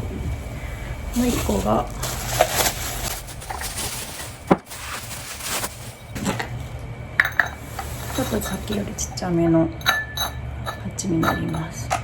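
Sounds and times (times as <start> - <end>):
handling rustling: 1.2 - 9.0.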